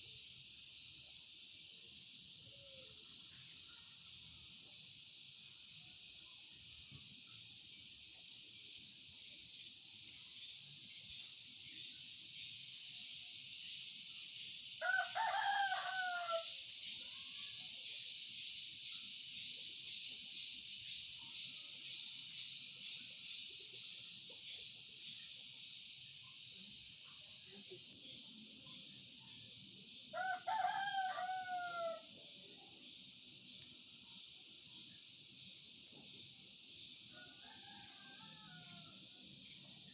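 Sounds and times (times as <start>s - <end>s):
steady high hiss: 0.0s - 39.9s
rooster crowing: 14.8s - 16.6s, 30.1s - 32.1s, 37.1s - 39.1s.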